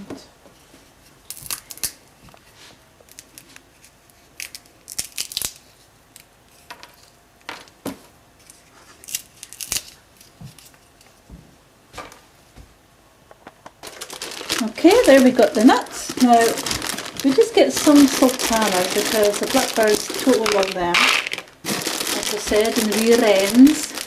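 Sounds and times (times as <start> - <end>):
peanut shells cracking: 1.2 - 2.0, 3.0 - 7.8, 8.4 - 11.1, 13.5 - 24.0.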